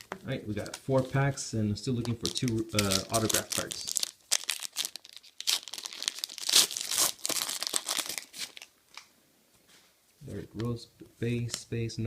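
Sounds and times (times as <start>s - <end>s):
card pack wrapper tearing: 2.0s - 8.7s.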